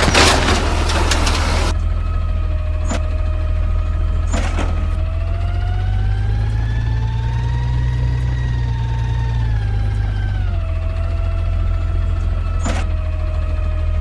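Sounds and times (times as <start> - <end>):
diesel truck engine revving: 0.0 - 1.8.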